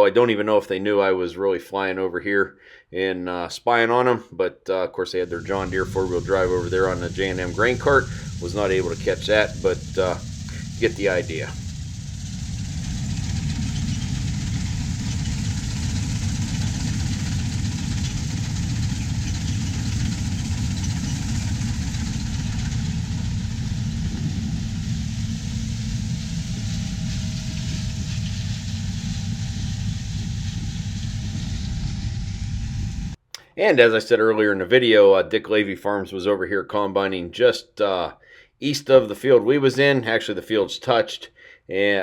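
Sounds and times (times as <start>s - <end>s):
farm machinery engine running: 5.3s - 33.2s.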